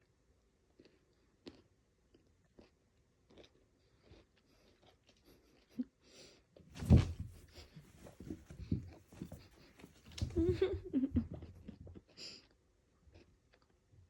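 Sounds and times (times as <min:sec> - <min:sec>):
kitten scrabbling and rustling: 0:06.7 - 0:11.8
thump: 0:06.8 - 0:09.4.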